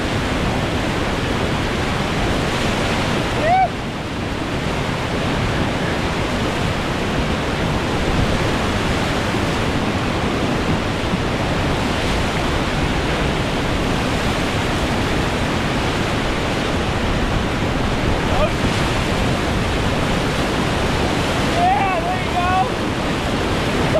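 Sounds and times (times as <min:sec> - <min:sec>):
whitewater rapids roaring: 0:00.0 - 0:23.9.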